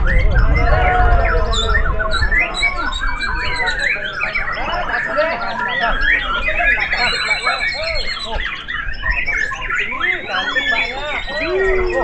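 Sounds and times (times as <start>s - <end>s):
low background rumble: 0.0s - 3.7s
birds singing whistled phrases: 0.0s - 12.0s.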